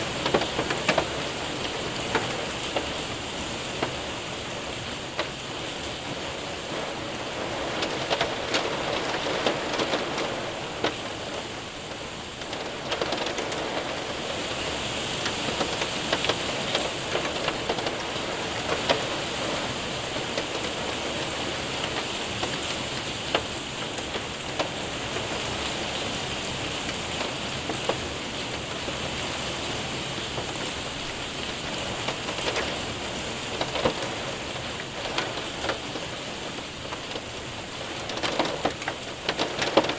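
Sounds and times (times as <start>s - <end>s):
hailstones ticking on window: 0.0s - 39.9s
rain hissing: 0.0s - 39.9s.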